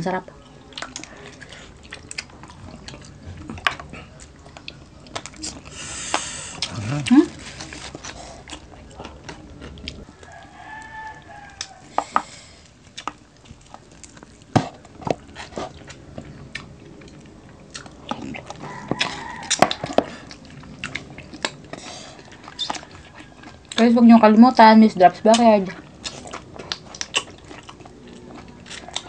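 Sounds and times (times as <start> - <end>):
chewing and mouth smacks: 0.4 - 24.0, 25.1 - 29.0
rooster crowing: 8.9 - 12.5, 18.3 - 20.9, 21.7 - 23.7, 28.6 - 29.0.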